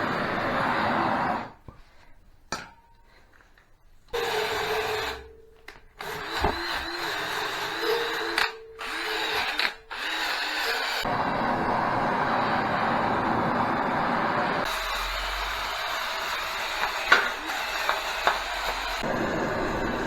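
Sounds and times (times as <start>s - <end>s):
wire brush power tool whining: 4.2s - 20.0s.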